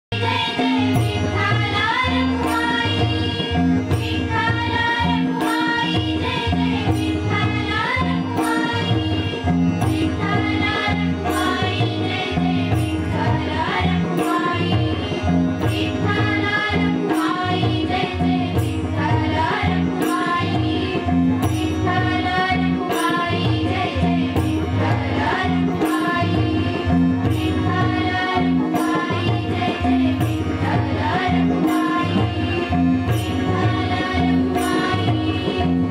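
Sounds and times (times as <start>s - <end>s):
drum percussion strikes: 0.1s - 35.9s
group singing devotional song: 4.3s - 9.3s, 10.0s - 15.0s, 15.7s - 21.1s, 21.9s - 26.8s, 27.6s - 32.7s, 33.4s - 35.9s.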